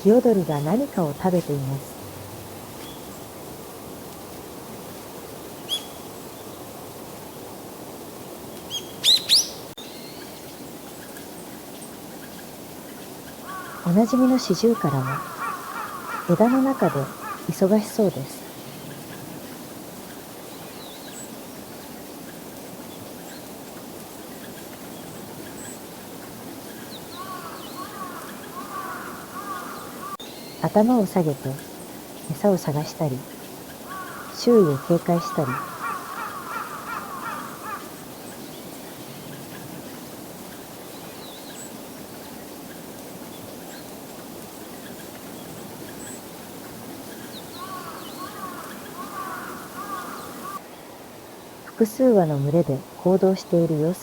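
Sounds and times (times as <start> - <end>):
outdoor background noise: 0.0 - 54.0
mid-pitched bird calls: 5.7 - 6.0, 8.7 - 10.3, 13.4 - 17.7, 26.8 - 30.7, 33.7 - 39.6, 47.2 - 50.6.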